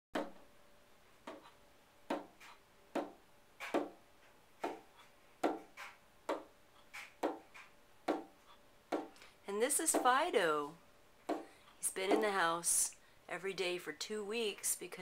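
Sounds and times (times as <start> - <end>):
duck knocking on a door: 2.1 - 4.0.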